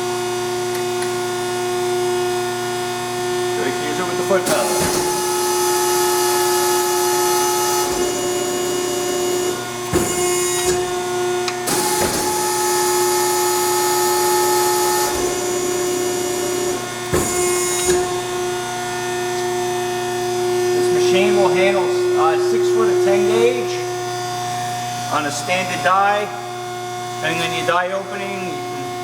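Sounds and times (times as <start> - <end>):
hydraulic pump whine: 0.0 - 29.0
hydraulic hiss: 4.4 - 9.2, 11.7 - 25.9.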